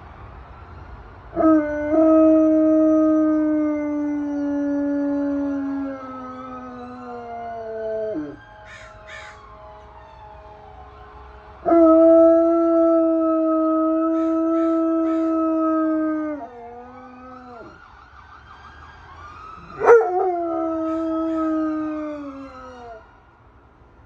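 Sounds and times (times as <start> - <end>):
faint wailing siren: 0.0 - 24.0
dog howling: 19.6 - 23.0.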